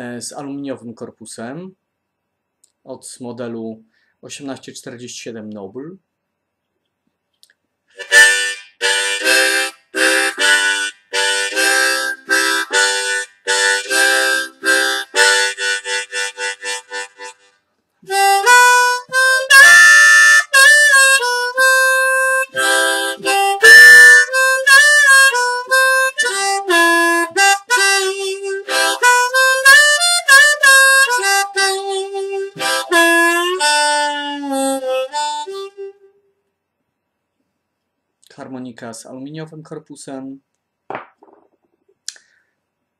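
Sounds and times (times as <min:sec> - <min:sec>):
harmonica playing: 0:07.9 - 0:36.3.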